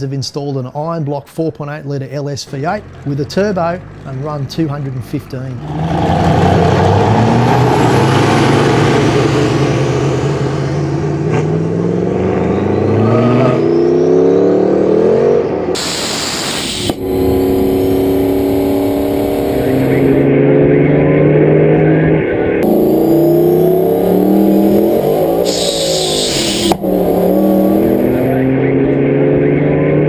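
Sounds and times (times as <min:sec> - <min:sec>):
race car accelerating: 0:02.6 - 0:15.8, 0:16.8 - 0:30.0
loud rushing noise: 0:15.8 - 0:20.3, 0:22.6 - 0:28.6.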